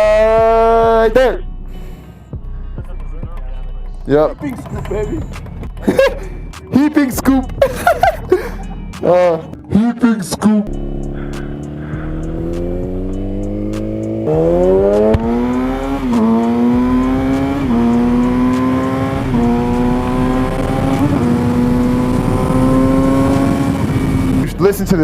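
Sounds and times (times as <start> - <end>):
motorcycle engine accelerating: 10.7 - 24.8.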